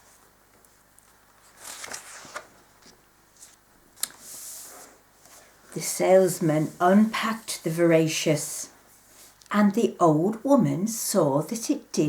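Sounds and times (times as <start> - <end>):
paper rustling: 0.0 - 5.5.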